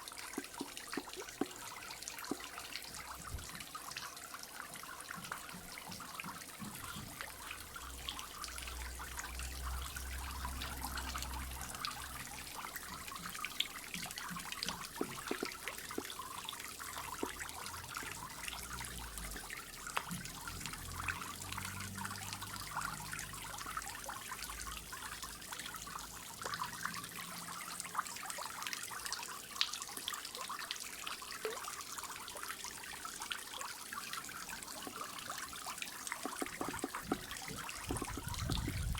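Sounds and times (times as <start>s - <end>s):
waterfall splashing into pond: 0.0s - 38.9s.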